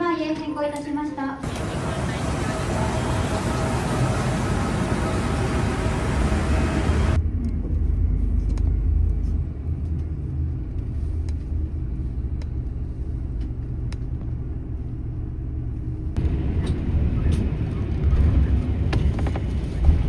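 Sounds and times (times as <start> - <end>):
broad rushing noise: 1.4 - 7.2
bus engine idling: 1.4 - 7.2, 16.2 - 20.0.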